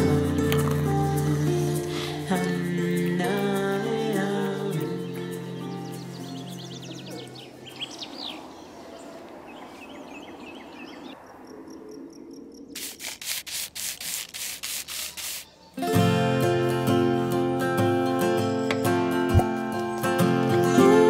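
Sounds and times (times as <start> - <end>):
acoustic guitar music: 0.0 - 7.6, 15.8 - 21.0
rubbing strokes: 12.8 - 15.6.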